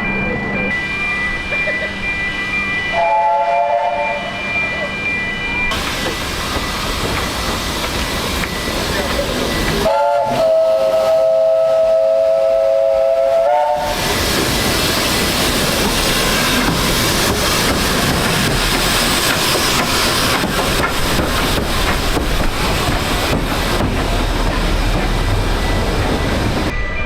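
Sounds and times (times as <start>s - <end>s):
train rumbling: 0.0s - 27.0s
steam locomotive whistle: 2.9s - 4.8s, 8.6s - 16.6s
wheel clatter over rail joints: 14.9s - 26.7s.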